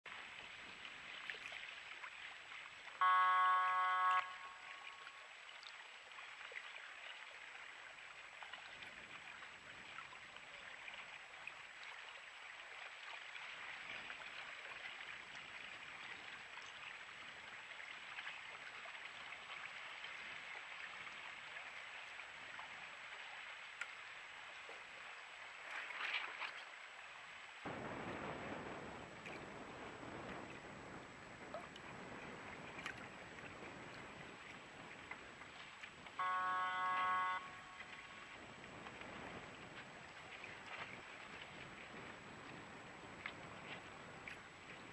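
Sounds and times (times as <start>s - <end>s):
wind and water rushing: 0.1s - 44.9s
loud horn blast: 3.0s - 5.3s, 36.2s - 38.4s.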